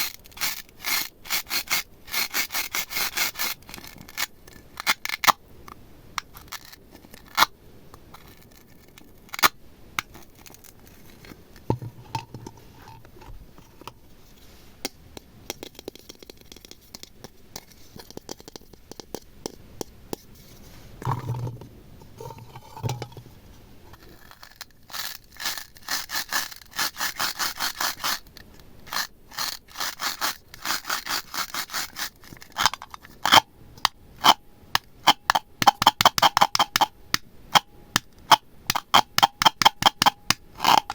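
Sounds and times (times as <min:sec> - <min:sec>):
slime scraping: 0:00.0 - 0:05.4, 0:06.2 - 0:14.6.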